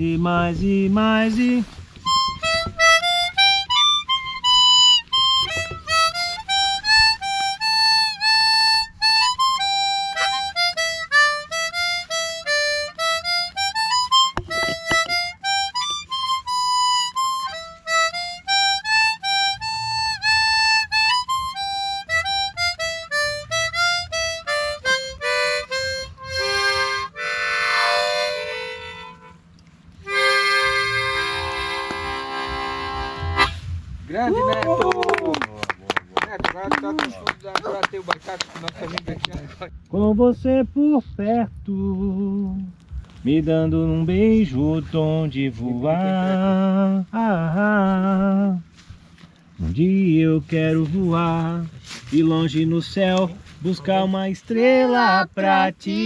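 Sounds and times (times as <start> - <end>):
harmonica chords: 1.0 - 34.0
harmonica melody: 2.0 - 34.0.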